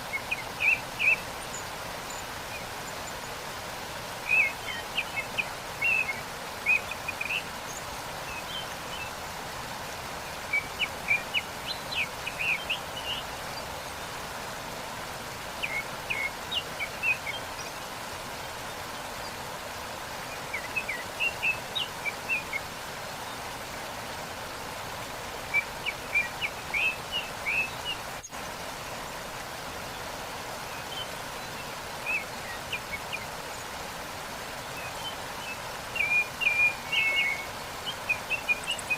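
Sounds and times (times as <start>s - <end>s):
songbirds chirping: 0.0s - 38.9s
waterfall rushing: 0.0s - 38.9s.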